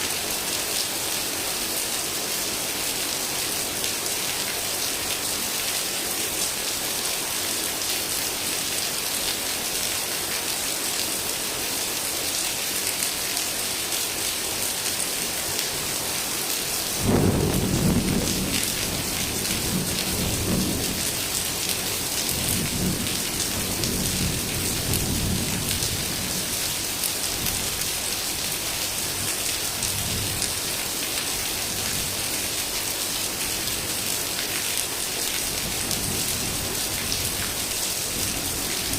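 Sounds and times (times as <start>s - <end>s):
heavy rain falling: 0.0s - 38.9s
thunder clap and rumble: 17.0s - 21.1s.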